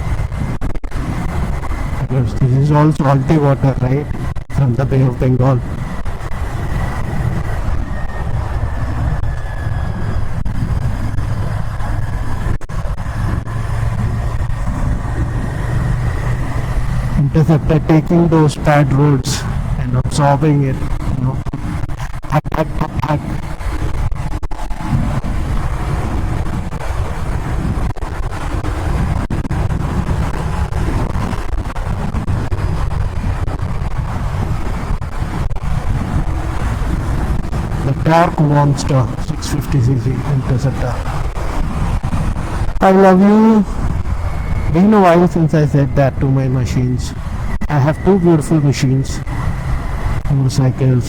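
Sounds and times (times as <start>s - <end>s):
wind buffeting microphone: 0.0s - 51.0s
motorcycle engine running: 5.6s - 17.7s.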